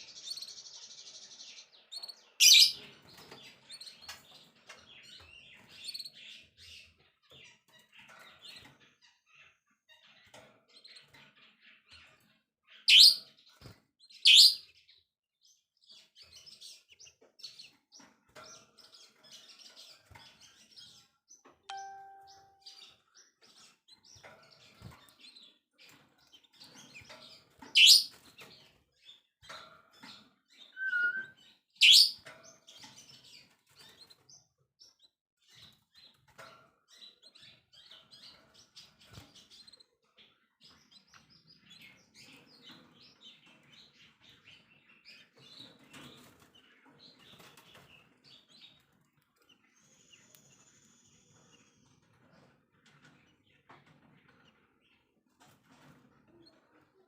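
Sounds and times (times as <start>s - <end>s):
faint bird chirps and twitters: 0.0s - 57.0s
short beep-like tone: 30.8s - 31.3s
songbird high whistled notes: 30.8s - 31.3s.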